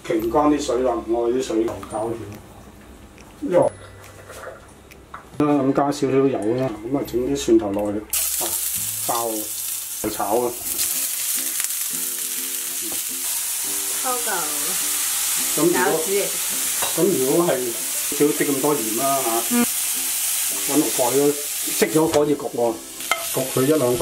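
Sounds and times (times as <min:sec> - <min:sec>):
garlic sizzling in frying pan: 0:08.1 - 0:24.0
person talking: 0:19.2 - 0:19.7.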